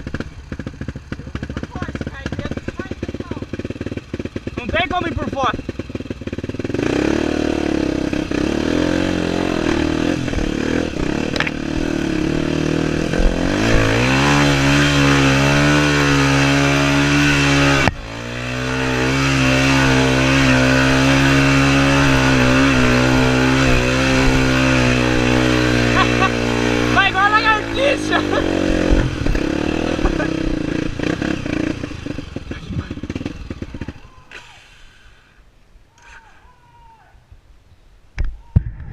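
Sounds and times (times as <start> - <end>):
motorcycle engine running: 0.0 - 34.3.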